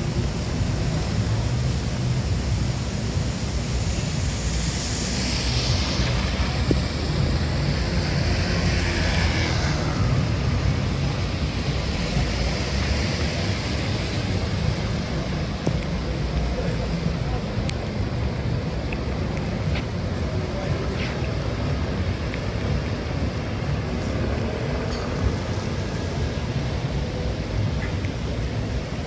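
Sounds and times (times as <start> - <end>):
traffic rumble: 0.0 - 29.0
wind: 0.0 - 29.0
hissing swells: 2.8 - 13.5.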